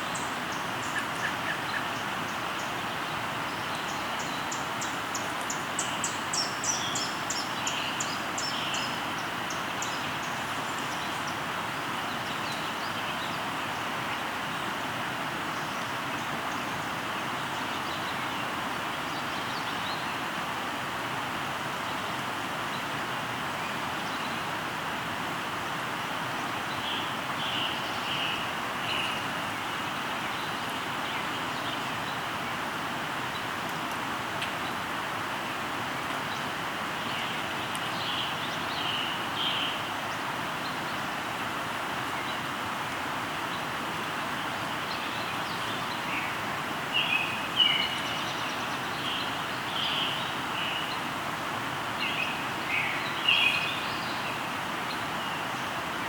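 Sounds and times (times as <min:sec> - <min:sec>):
bird calls: 0:00.0 - 0:11.4
river flowing: 0:00.0 - 0:56.0.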